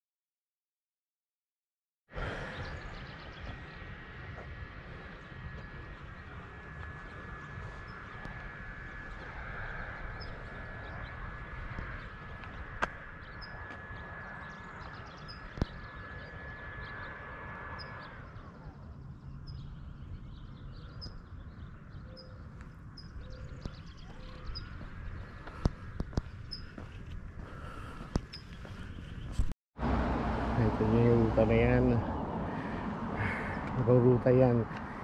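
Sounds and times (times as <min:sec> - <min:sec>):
high sliding whine: 0:02.2 - 0:28.8
small birds chirping: 0:02.2 - 0:29.5, 0:30.6 - 0:35.0.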